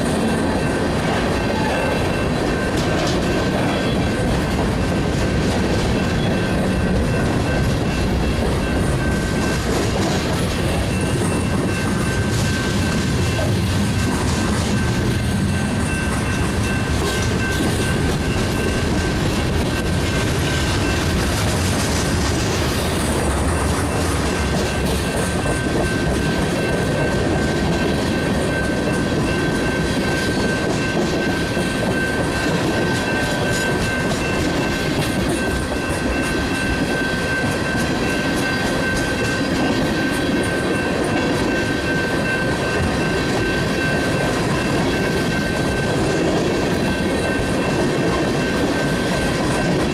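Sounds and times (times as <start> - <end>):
train wheels clicking over rail joints: 0.0 - 49.9
high ringing tone: 0.1 - 4.3.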